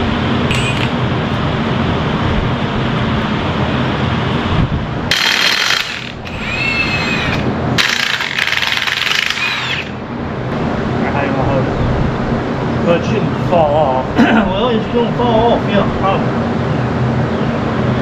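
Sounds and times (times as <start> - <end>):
steady low hum: 0.0 - 18.0
power tool rattling: 0.5 - 1.0, 5.1 - 10.1.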